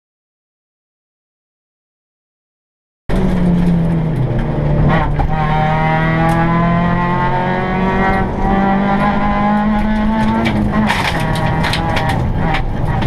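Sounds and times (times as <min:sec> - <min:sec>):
rally car engine revving: 0:03.1 - 0:13.0.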